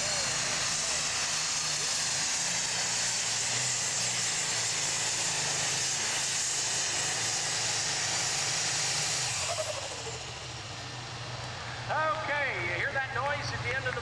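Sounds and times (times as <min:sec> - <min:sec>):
turbos winding down whistle: 0:00.0 - 0:10.7
turbos hissing: 0:00.0 - 0:13.8
tractor engine droning: 0:00.0 - 0:14.0.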